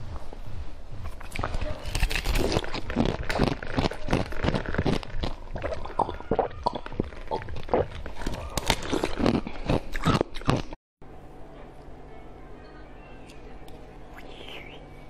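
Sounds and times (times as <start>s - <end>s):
ice being chewed: 1.0s - 10.8s.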